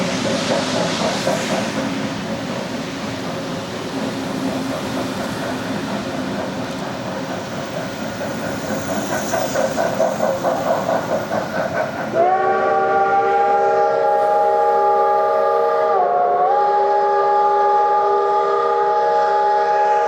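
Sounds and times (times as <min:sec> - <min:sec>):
steam locomotive chugging: 0:00.0 - 0:20.0
steam whistle: 0:12.1 - 0:20.0.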